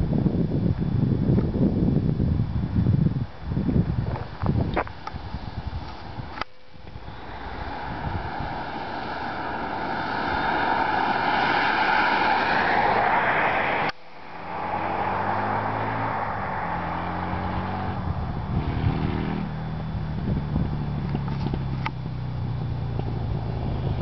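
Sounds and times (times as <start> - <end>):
motorcycle engine: 5.5 - 13.4, 14.0 - 24.0.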